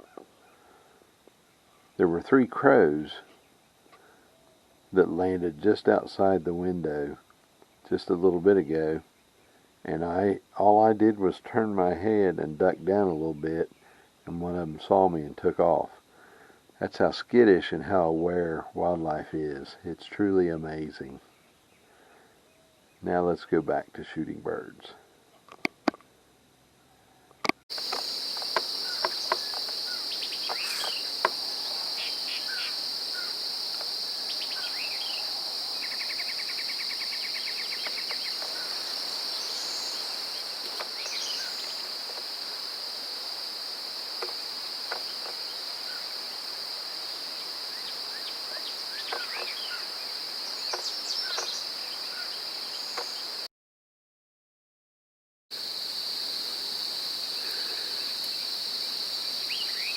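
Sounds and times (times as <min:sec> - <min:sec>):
songbird chirps: 0:00.0 - 0:15.8, 0:26.7 - 0:53.5, 0:57.2 - 0:59.9
sharp clicks: 0:27.4 - 0:29.8
high-pitched insect chorus: 0:27.7 - 0:53.5, 0:55.5 - 0:59.9
bird rapid trill: 0:27.8 - 0:33.5, 0:34.1 - 0:42.0.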